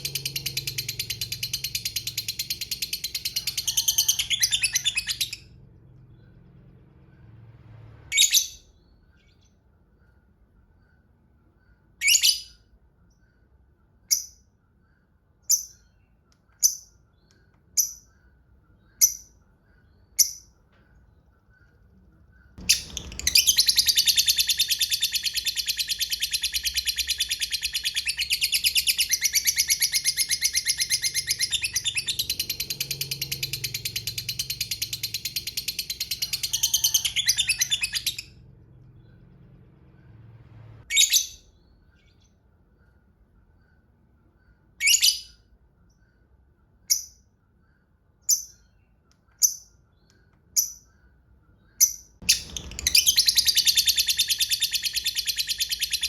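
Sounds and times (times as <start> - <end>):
lovebird sharp chirps: 14.0 - 38.4, 46.8 - 56.0
lovebird rapid chattering trill: 51.8 - 56.0.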